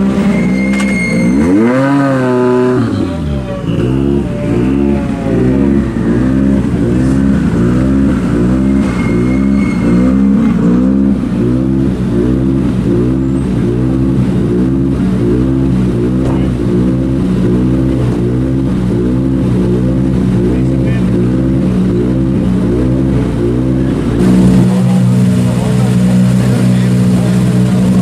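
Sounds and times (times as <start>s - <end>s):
rally car engine pulsing: 0.0s - 28.0s.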